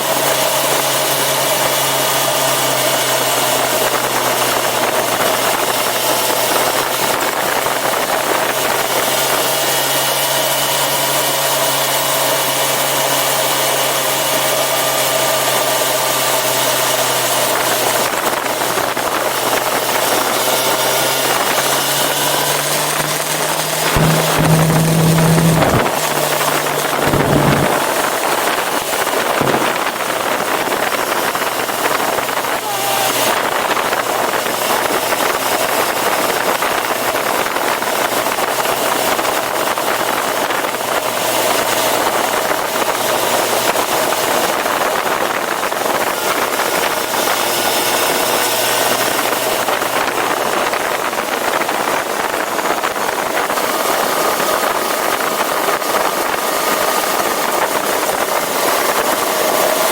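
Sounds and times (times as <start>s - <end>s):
motorcycle engine cruising: 0.0s - 59.9s
wind rushing over microphone: 23.4s - 34.6s.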